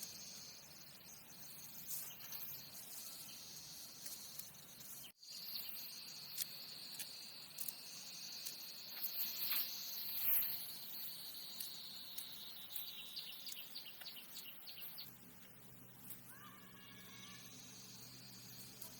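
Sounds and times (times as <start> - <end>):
insects chirring: 0.0 - 18.9.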